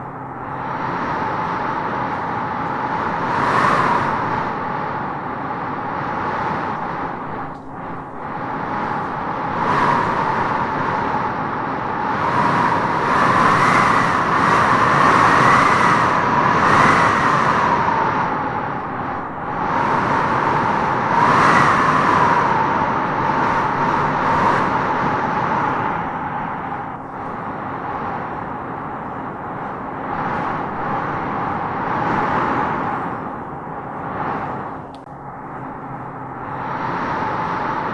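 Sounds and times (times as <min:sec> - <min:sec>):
strong gusty wind howling: 0:00.0 - 0:37.9.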